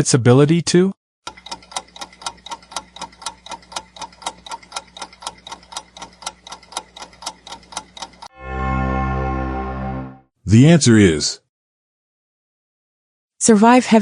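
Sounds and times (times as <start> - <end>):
countdown timer ticking: 1.3 - 8.3.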